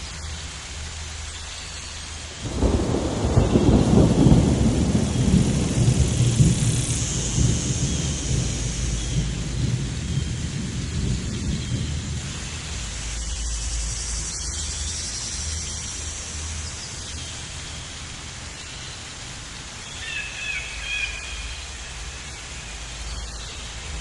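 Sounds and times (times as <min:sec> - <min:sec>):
rain hiss: 0:00.0 - 0:24.0
thunder rumbling: 0:02.4 - 0:13.3.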